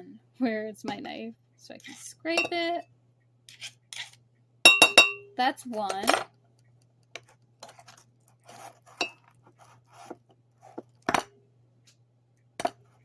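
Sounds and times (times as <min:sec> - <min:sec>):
knife scraping a spoon: 0:01.8 - 0:02.2, 0:03.5 - 0:04.2, 0:07.2 - 0:11.0
metal clinking on a mug: 0:04.7 - 0:05.3.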